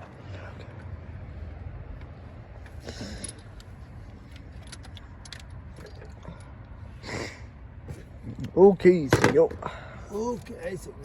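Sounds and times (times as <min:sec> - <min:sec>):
light clicks and clinks: 0:03.0 - 0:06.7.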